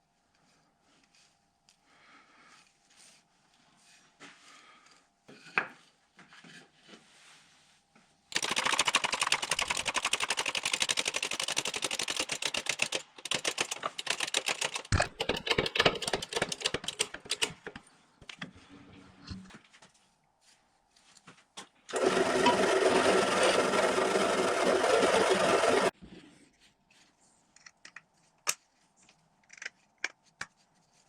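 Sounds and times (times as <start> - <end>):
jigsaw cutting plywood: 21.9 - 25.9.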